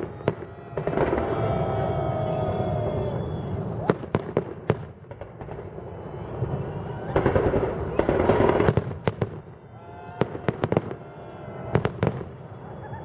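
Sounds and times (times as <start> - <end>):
continuous rumbling: 0.8 - 3.9, 6.2 - 8.7
firework shells bursting: 6.2 - 8.8.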